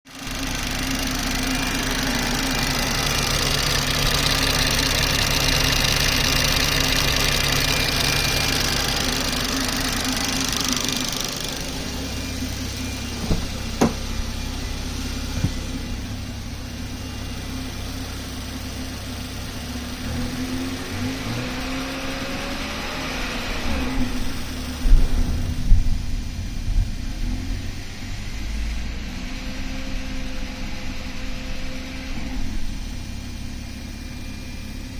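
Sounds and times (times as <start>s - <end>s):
engine ticking: 0.1s - 20.3s
car engine running: 0.1s - 34.9s.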